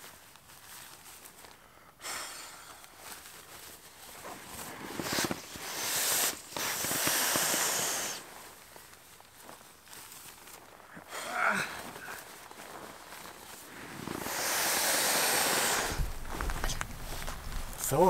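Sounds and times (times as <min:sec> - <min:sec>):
fabric and gear rustling: 0:03.0 - 0:05.7, 0:11.7 - 0:14.3, 0:15.9 - 0:18.0.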